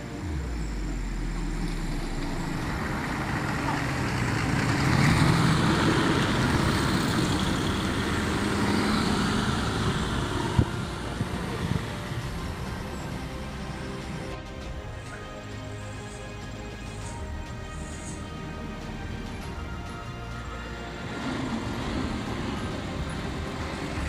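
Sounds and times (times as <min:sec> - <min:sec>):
road noise: 0:00.0 - 0:24.0
truck engine: 0:00.0 - 0:24.0.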